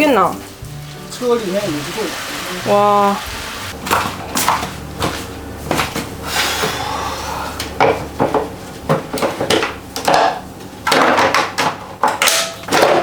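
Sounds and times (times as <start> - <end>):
dishes and cutlery clattering: 9.2 - 13.0.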